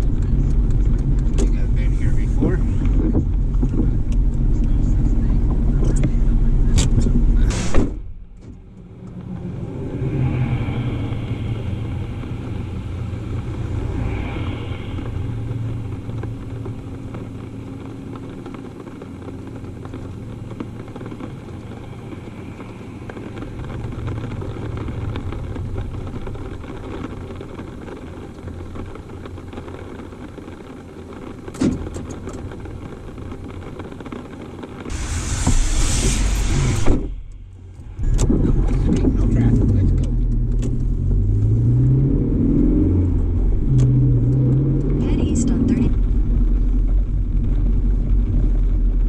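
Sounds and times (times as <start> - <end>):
engine and road rumble: 0.0 - 49.0
faint hiss: 34.9 - 38.0.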